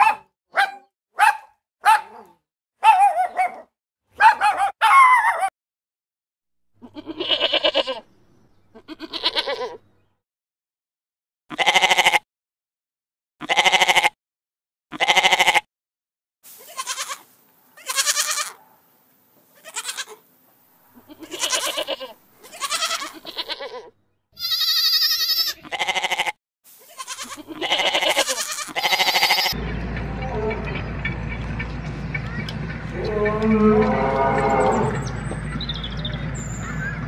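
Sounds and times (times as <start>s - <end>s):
goats bleating: 6.8s - 8.0s, 8.8s - 9.8s, 11.5s - 12.2s, 13.4s - 14.2s, 14.9s - 15.7s, 16.6s - 18.6s, 19.6s - 20.2s, 21.0s - 29.6s, 32.9s - 35.1s.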